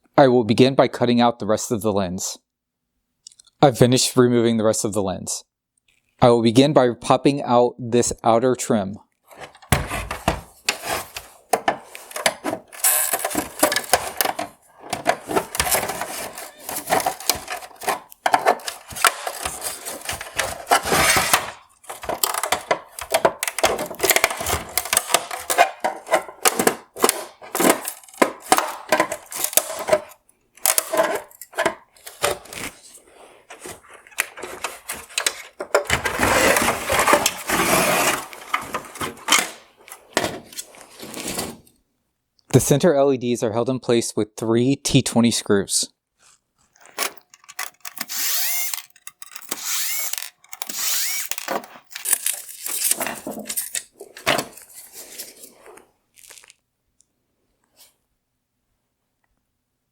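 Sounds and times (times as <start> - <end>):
plastic clicks and knocks: 11.5 - 32.4
plastic cracking and snapping: 11.5 - 32.6, 46.6 - 54.6.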